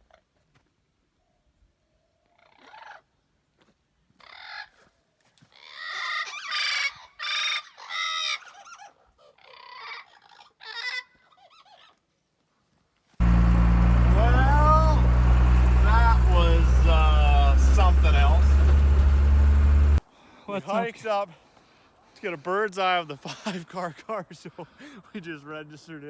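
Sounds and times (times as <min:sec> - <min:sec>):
loud vehicle engine: 0:13.2 - 0:20.0.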